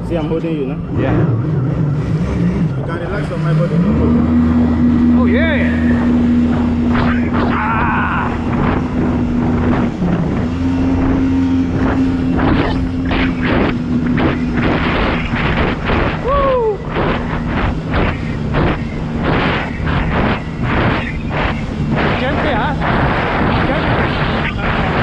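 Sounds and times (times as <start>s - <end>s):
jet ski engine running: 0.0s - 25.0s
wind noise on microphone: 0.9s - 25.0s
thumps and splashing: 5.8s - 25.0s.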